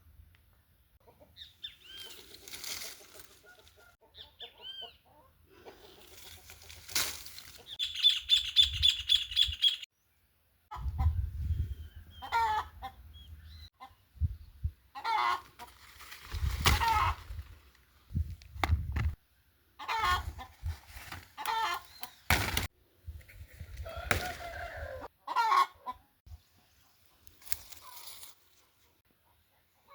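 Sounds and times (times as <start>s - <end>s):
chickens clucking: 1.0s - 7.8s, 10.7s - 11.3s, 12.0s - 14.3s, 14.9s - 15.9s, 19.8s - 22.2s, 23.9s - 28.0s, 28.8s - 29.9s
small birds chirping: 1.2s - 2.4s, 7.6s - 10.2s, 21.4s - 22.4s.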